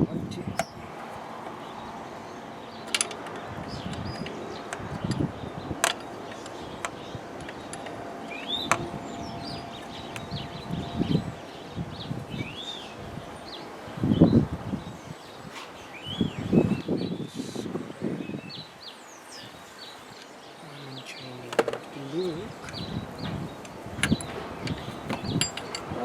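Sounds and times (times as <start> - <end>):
birds chirping: 0.0 - 26.0
metal tool clinks: 2.9 - 8.8, 24.1 - 25.9
scraping and handling noises: 2.9 - 9.0, 24.0 - 26.0.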